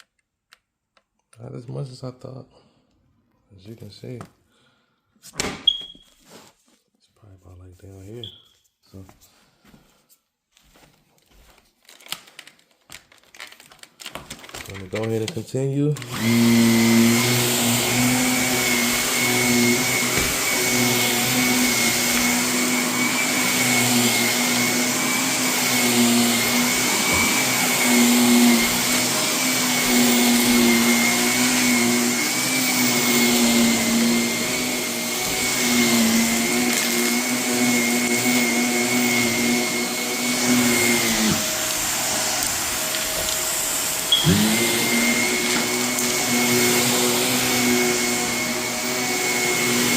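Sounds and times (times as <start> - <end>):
vacuum cleaner whining: 14.1 - 49.9.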